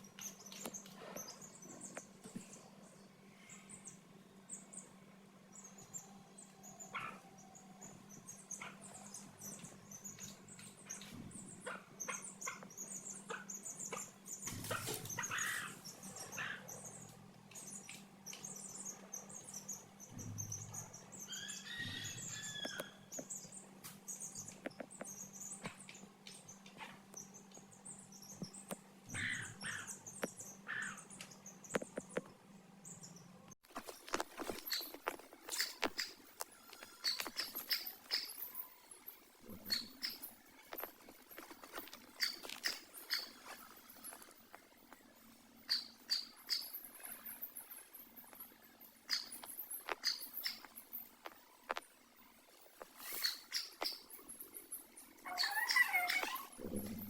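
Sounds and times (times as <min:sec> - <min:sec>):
chicks cheeping: 0:05.6 - 0:32.2, 0:55.2 - 0:57.0.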